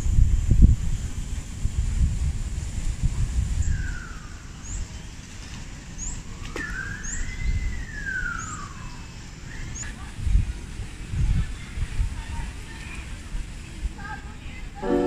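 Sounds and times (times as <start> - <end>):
high rising bird chirp: 6.0 - 9.8.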